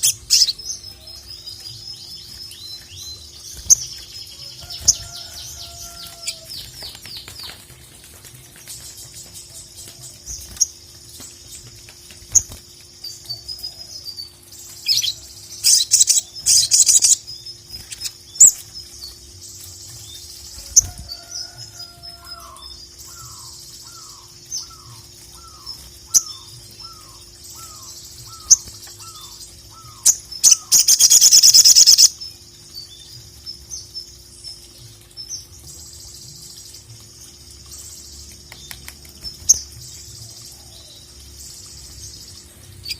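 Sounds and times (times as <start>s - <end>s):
bird chattering song: 8.8s - 21.6s, 22.2s - 42.9s.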